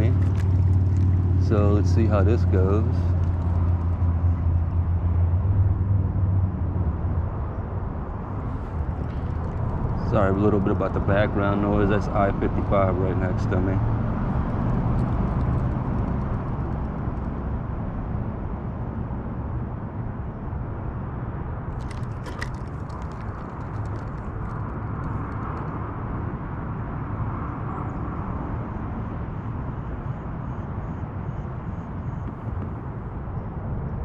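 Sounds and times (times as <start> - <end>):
traffic rumble and hiss: 0.0 - 34.0.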